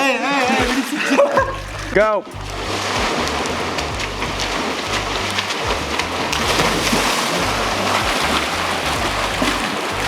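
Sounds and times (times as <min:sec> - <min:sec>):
background music bass line: 0:00.0 - 0:10.0
water splashing in a pool: 0:00.0 - 0:10.0.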